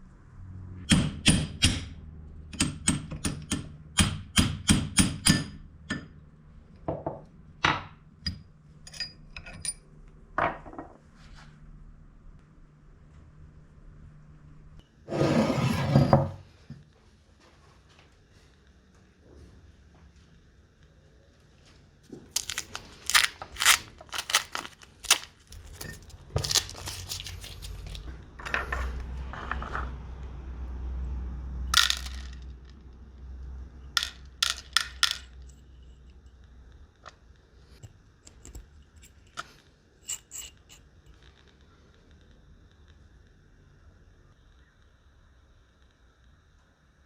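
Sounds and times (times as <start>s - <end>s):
small metal parts clinking: 22.3s - 29.6s, 31.7s - 32.6s, 34.0s - 35.8s, 38.3s - 41.2s.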